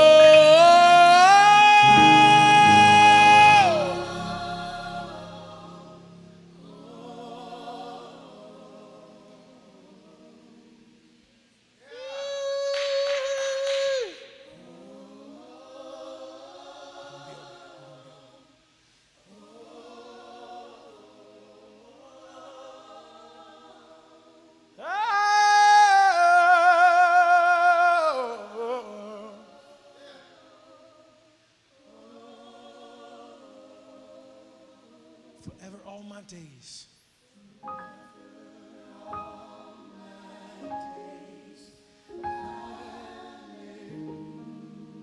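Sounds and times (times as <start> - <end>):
solo voice holding notes with vibrato: 0.0 - 7.1
congregation singing unaccompanied: 0.0 - 35.8, 37.3 - 45.0.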